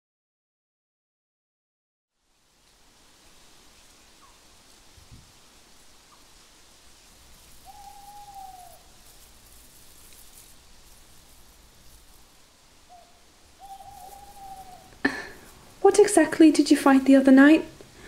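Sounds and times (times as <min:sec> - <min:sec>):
faint steady hiss: 0:02.1 - 0:18.0
owl hooting: 0:07.3 - 0:12.1, 0:12.8 - 0:16.1.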